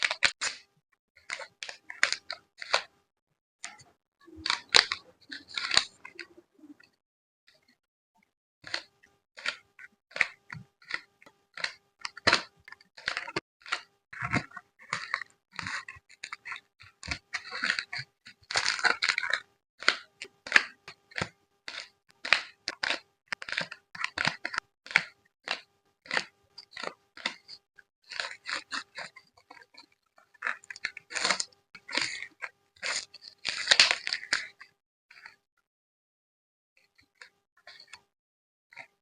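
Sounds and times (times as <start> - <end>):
packaging crinkling and rustling: 4.4 - 6.2, 10.2 - 34.6.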